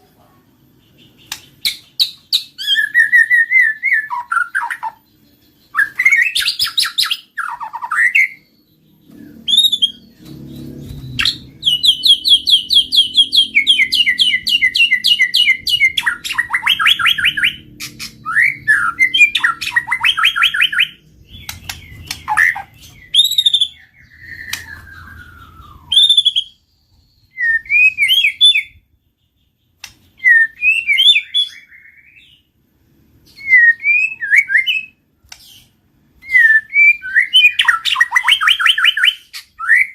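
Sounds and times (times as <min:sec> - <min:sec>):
songbird whistling and chattering: 0:00.9 - 0:28.8, 0:29.8 - 0:32.5, 0:33.3 - 0:39.9
faint low rumble: 0:08.6 - 0:27.4.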